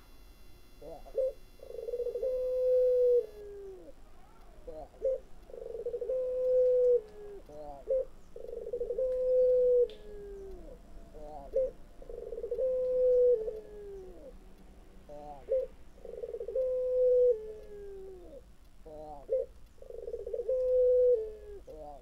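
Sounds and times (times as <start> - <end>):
dove cooing: 0.8 - 14.4, 15.1 - 22.0.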